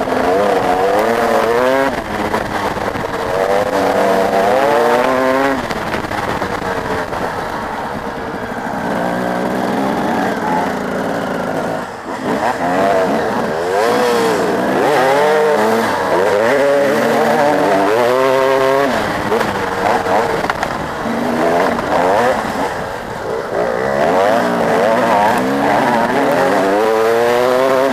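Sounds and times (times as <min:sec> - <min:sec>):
motocross bike engines revving: 0:00.0 - 0:27.9.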